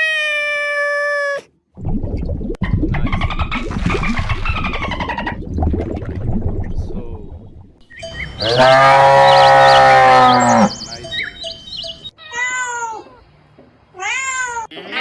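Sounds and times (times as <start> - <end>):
high warbling chirps: 1.8 - 12.1
cow mooing: 8.4 - 10.8.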